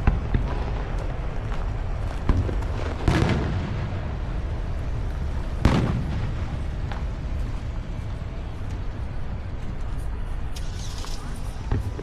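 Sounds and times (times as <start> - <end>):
faint firework pops: 0.0 - 3.9, 5.6 - 7.1
fireworks booming with echo: 0.0 - 9.8, 11.2 - 12.0.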